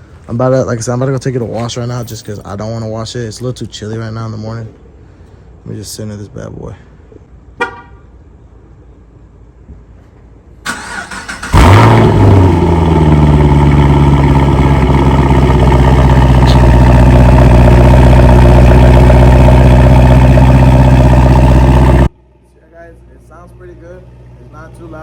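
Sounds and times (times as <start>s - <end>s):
car engine revving and idling: 10.7s - 22.1s.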